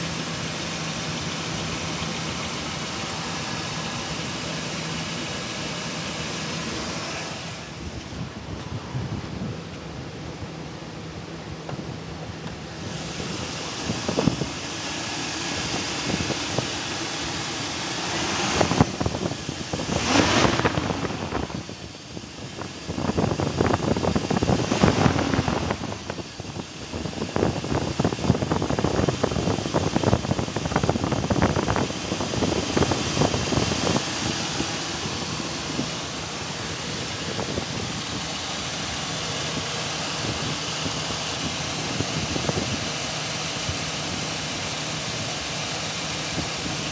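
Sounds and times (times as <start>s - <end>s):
engine running with knock: 11.6s - 46.9s.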